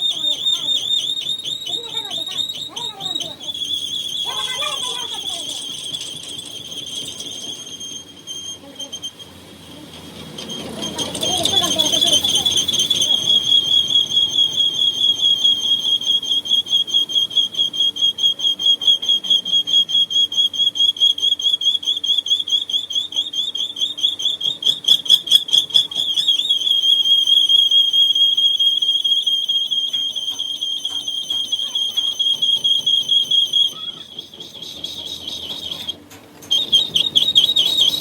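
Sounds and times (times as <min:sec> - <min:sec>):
lathe tool metallic squeal: 0:00.0 - 0:38.0.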